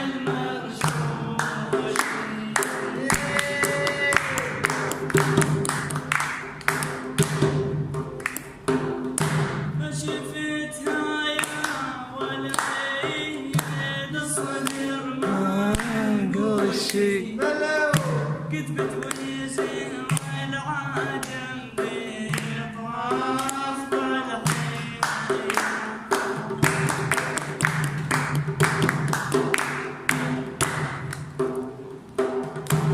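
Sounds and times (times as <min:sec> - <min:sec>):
man singing: 0:00.0 - 0:05.0, 0:09.8 - 0:27.6
instrumental accompaniment: 0:00.0 - 0:32.9
percussion beats: 0:00.0 - 0:32.9.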